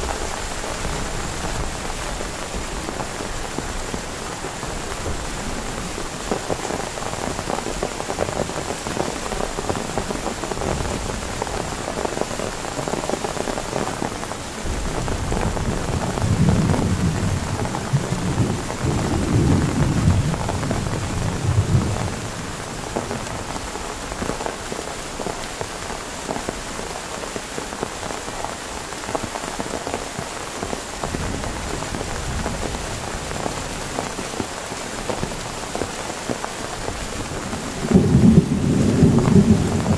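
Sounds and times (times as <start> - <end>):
heavy rain falling: 0.0 - 39.9
thunder rumbling: 14.7 - 23.4, 37.2 - 39.9.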